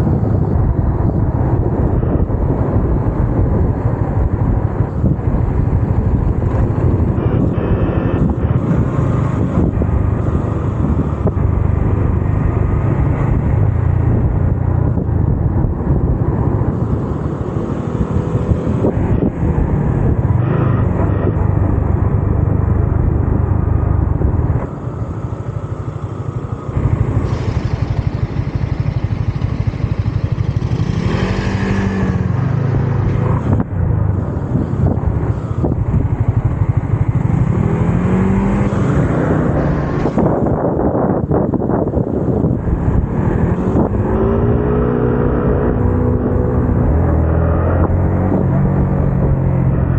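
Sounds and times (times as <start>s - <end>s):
motorcycle engine running: 0.0s - 49.9s
wind rushing: 26.8s - 49.9s.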